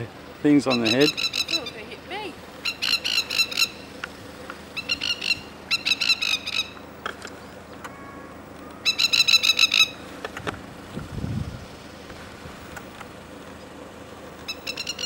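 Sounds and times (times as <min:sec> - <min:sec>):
lapwing staccato alarm call: 0:00.0 - 0:10.2, 0:13.2 - 0:15.0.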